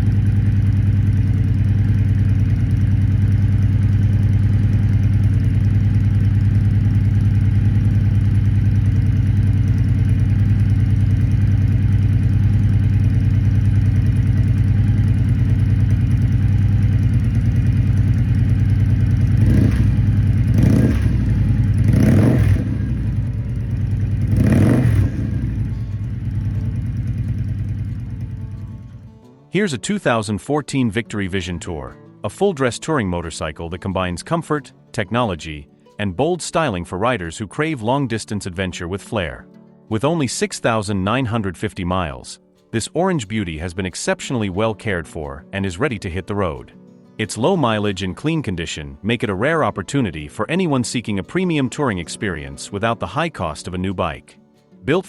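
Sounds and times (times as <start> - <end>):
motorcycle engine idling and revving: 0.0 - 29.2.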